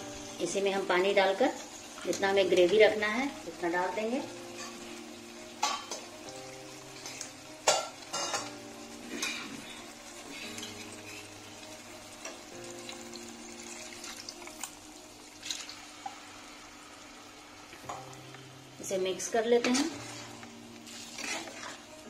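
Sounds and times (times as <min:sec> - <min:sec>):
food sizzling in a pan: 0:00.0 - 0:22.0
metal spatula scraping a pan: 0:19.6 - 0:21.9.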